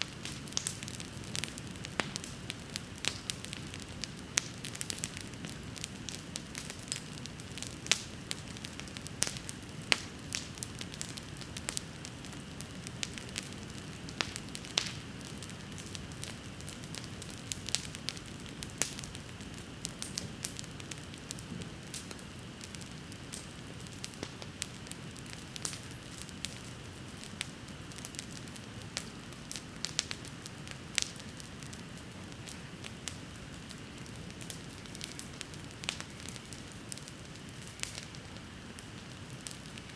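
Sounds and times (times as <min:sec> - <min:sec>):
bonfire crackling and popping: 0:00.0 - 0:39.9
low noise of flames: 0:00.0 - 0:39.9.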